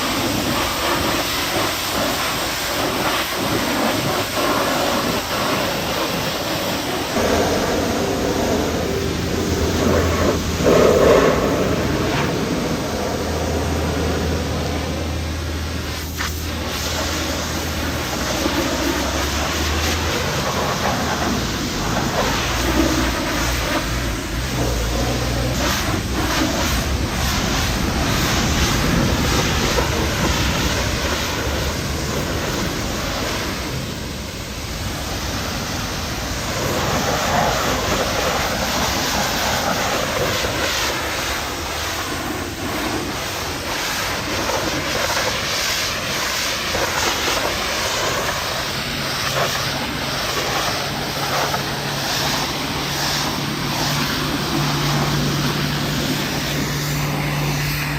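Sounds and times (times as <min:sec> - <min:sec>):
pressure washer spraying water: 0:00.0 - 0:57.9
low motor hum: 0:05.0 - 0:39.3, 0:47.8 - 0:57.9.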